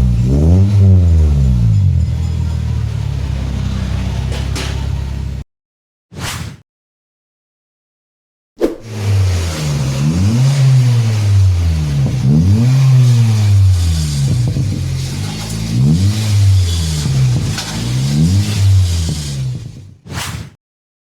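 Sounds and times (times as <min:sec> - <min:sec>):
car engine revving: 0:00.0 - 0:05.4, 0:08.9 - 0:19.8.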